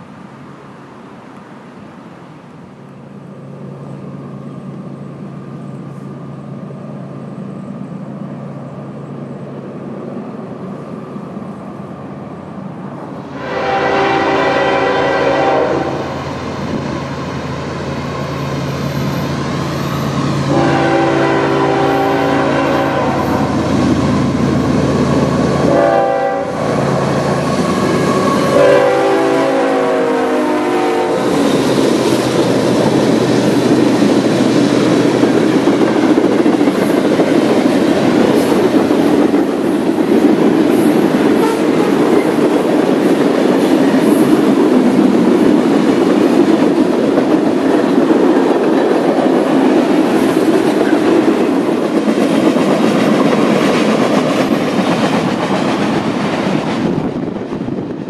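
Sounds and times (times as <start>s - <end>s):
train rumbling past: 0.0s - 58.0s
locomotive horn blasts: 13.3s - 16.2s, 20.5s - 23.6s, 25.6s - 26.6s, 28.0s - 31.4s, 41.3s - 42.2s.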